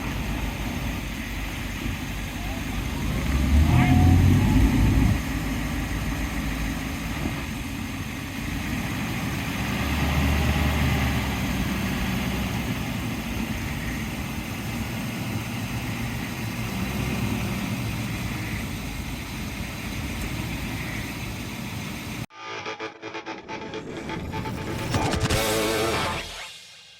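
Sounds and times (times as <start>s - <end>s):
engine idling: 0.0s - 22.3s.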